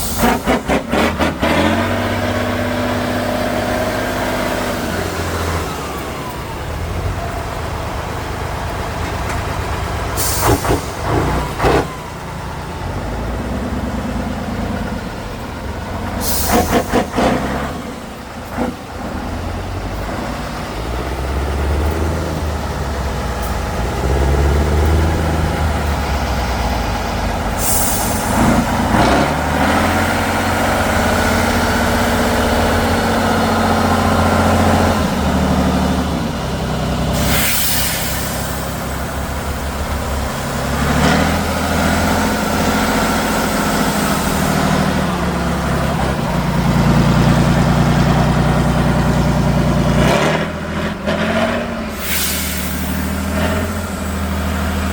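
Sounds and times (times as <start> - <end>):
truck engine revving under load: 0.0 - 54.9
short hisses: 10.2 - 11.1, 16.2 - 17.2, 27.6 - 28.9, 37.2 - 39.2, 51.9 - 54.5.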